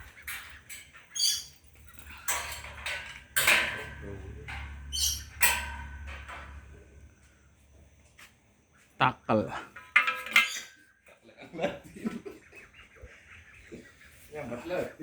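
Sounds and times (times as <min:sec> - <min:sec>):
bird chirping: 0:00.0 - 0:02.7, 0:04.1 - 0:07.7, 0:08.7 - 0:15.0
sharp clattering bursts: 0:00.0 - 0:07.1.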